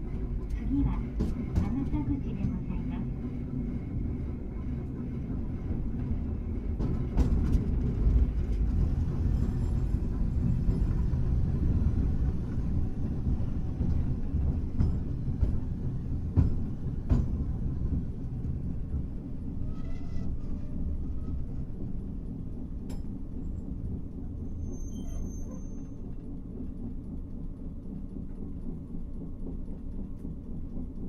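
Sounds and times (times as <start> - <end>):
tram wheels rumbling on rail: 0.0 - 31.0
thin wheel squeal: 19.6 - 21.4, 24.5 - 26.0.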